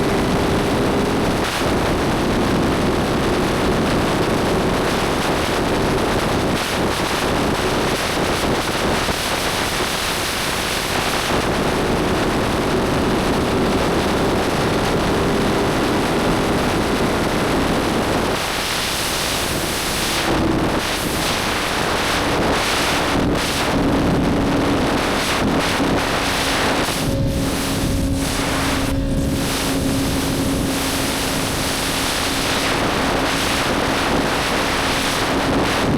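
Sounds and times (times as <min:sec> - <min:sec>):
wind rushing over microphone: 0:00.0 - 0:35.9
motorcycle engine: 0:11.5 - 0:22.3, 0:24.4 - 0:35.2.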